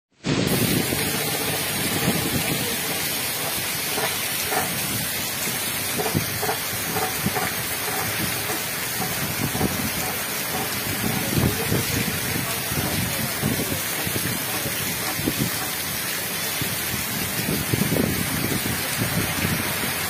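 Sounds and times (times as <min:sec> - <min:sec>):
heavy rain pouring on street: 0:00.2 - 0:20.0.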